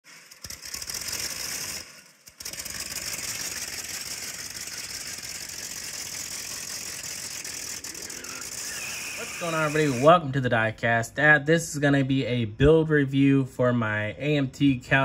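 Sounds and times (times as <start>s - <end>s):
hot rod engine running rough: 0.1s - 10.1s.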